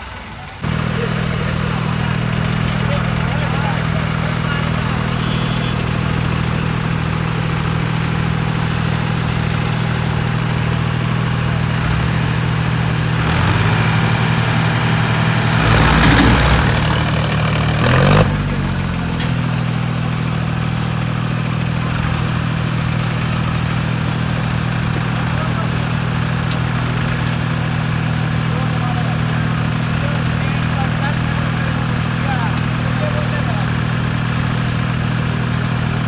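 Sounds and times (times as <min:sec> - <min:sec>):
tractor diesel engine idling and revving: 0:00.0 - 0:36.0.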